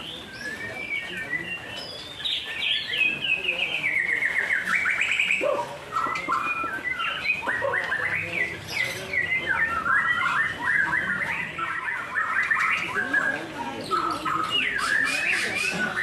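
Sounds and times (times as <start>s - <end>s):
birds singing whistled trills: 0.0s - 16.0s.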